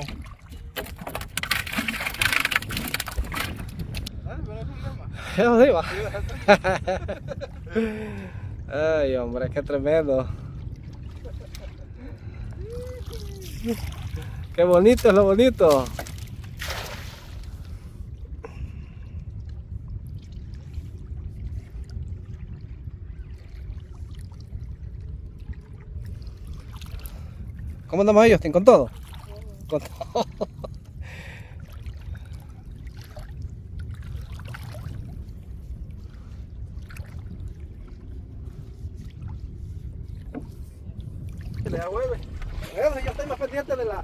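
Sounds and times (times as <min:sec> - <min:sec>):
low rumble: 0:00.0 - 0:44.0
water splashing and trickling: 0:00.0 - 0:44.0
net splashing into water: 0:15.9 - 0:17.4.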